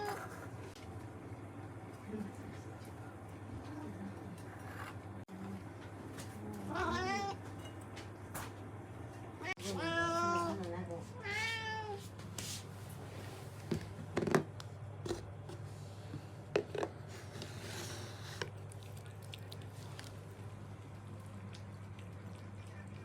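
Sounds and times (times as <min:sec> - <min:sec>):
cat meowing: 0:06.7 - 0:07.4, 0:09.4 - 0:10.6, 0:11.2 - 0:12.0.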